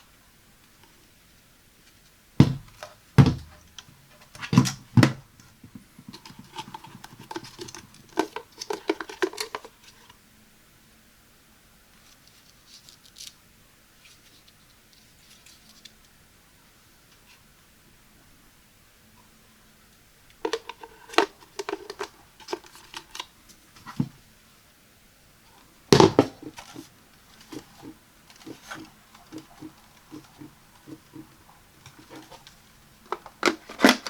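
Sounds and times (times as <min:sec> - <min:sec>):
sharp knocks: 0:02.4 - 0:03.6
faint clicks and scrapes: 0:05.4 - 0:10.2, 0:20.4 - 0:24.1, 0:25.6 - 0:34.0
packaging rustling: 0:20.4 - 0:23.2, 0:25.9 - 0:34.0.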